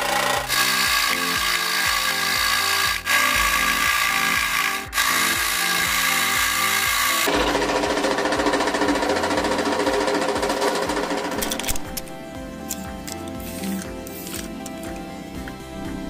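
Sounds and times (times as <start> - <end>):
power tool working wood: 0.0 - 11.4
background music: 0.0 - 16.0.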